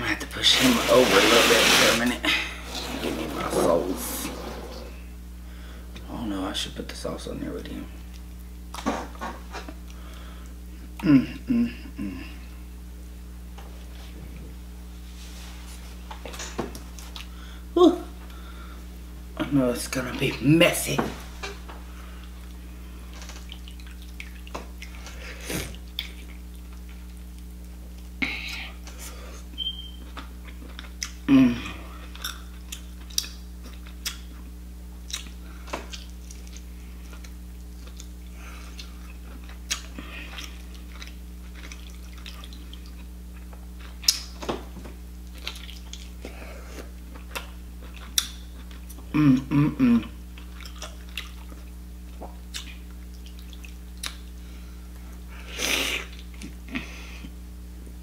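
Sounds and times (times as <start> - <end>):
low electrical hum: 0.0 - 58.0
chewing mouth sounds: 23.3 - 28.1, 32.1 - 44.4, 45.3 - 49.4, 50.3 - 54.4.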